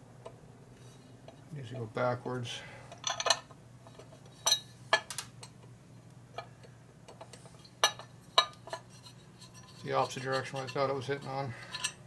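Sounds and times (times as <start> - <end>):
metal tools clinking: 9.4 - 12.0.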